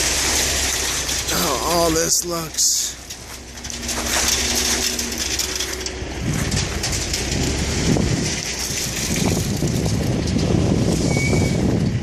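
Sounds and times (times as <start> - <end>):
footsteps on dirt and gravel: 0.0 - 10.9
wind buffeting microphone: 5.5 - 12.0.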